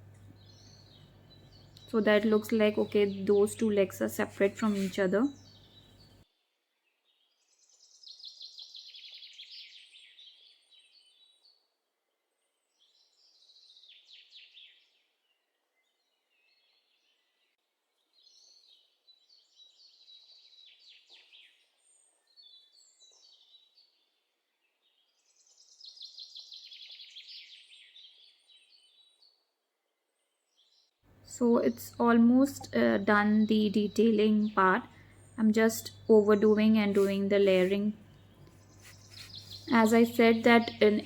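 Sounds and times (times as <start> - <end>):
faint songbird trilling: 0.0 - 6.2, 31.2 - 41.0.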